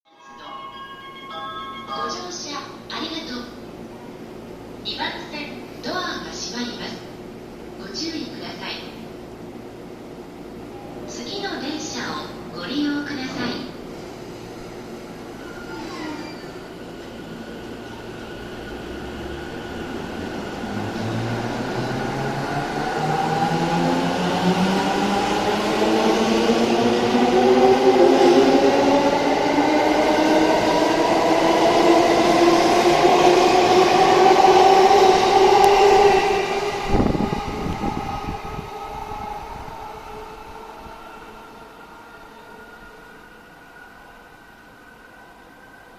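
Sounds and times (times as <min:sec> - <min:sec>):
high-pitched train tone: 0:00.1 - 0:03.6, 0:15.2 - 0:45.9
electric train rumbling: 0:00.7 - 0:45.9.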